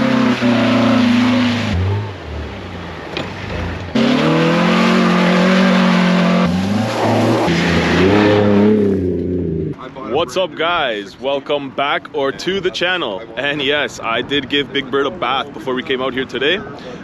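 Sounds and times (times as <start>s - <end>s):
car engine revving hard: 0.0s - 2.8s, 3.4s - 9.8s.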